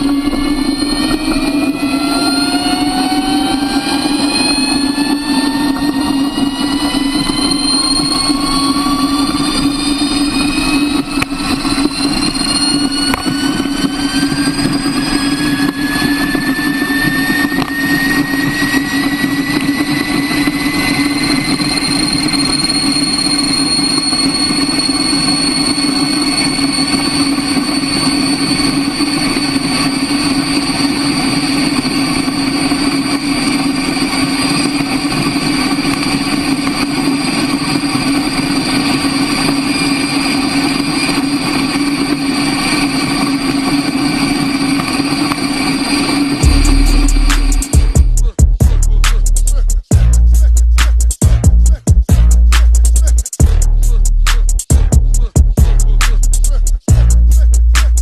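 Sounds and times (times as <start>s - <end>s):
motorcycle engine droning: 0.0s - 58.0s.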